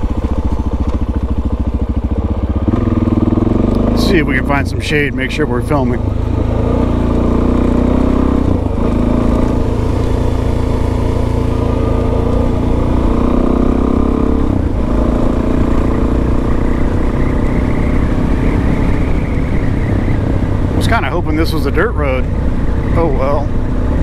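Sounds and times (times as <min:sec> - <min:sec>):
motorcycle engine running: 0:00.0 - 0:24.0
wind rushing over microphone: 0:05.9 - 0:24.0.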